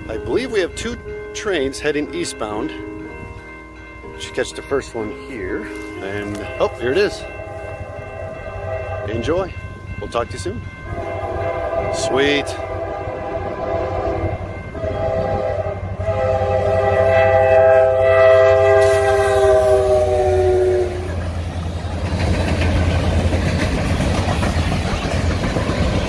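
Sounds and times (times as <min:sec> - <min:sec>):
locomotive air horn: 0:10.8 - 0:21.2
freight cars rumbling: 0:21.0 - 0:26.0
wheels clacking on rail joints: 0:21.1 - 0:26.0.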